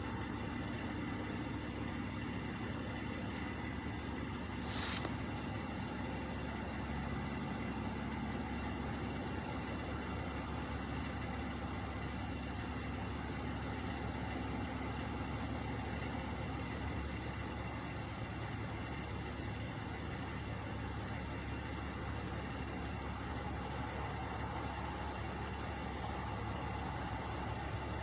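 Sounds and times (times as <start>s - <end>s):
trucks idling: 0.0s - 28.0s
short sharp hiss: 4.6s - 5.4s.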